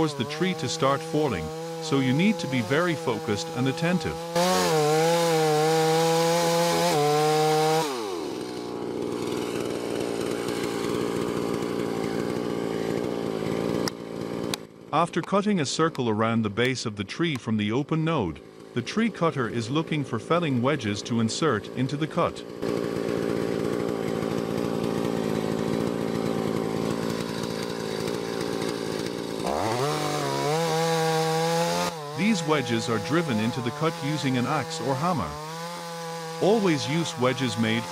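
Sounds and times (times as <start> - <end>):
chainsaw revving and idling: 0.0 - 37.9.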